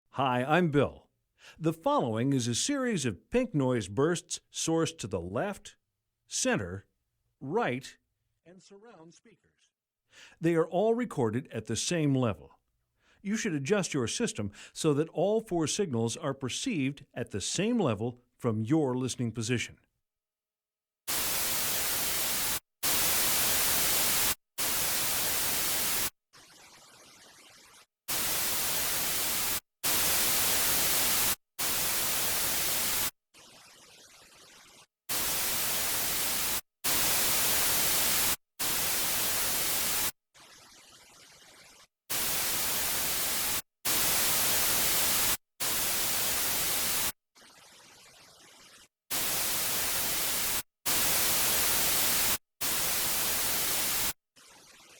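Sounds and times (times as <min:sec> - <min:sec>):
pink noise bursts: 0:28.1 - 0:33.1, 0:35.1 - 0:40.1, 0:42.1 - 0:47.1, 0:49.1 - 0:54.2.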